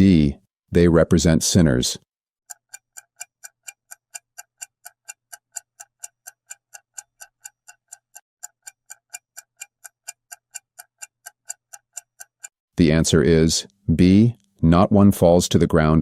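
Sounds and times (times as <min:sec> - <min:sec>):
clock ticking: 0:02.5 - 0:12.6.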